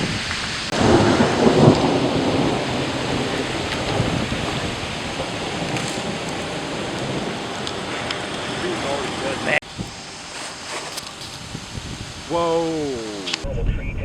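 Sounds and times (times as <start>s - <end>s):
heavy rain: 0.0s - 13.4s
wind: 0.0s - 14.0s.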